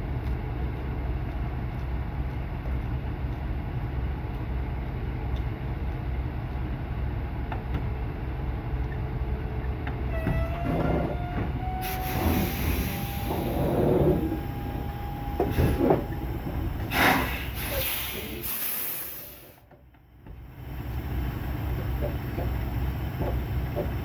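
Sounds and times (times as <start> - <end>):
truck diesel engine rumbling: 0.0 - 24.0
rising whine: 10.1 - 19.5
loud air hiss: 11.6 - 19.6.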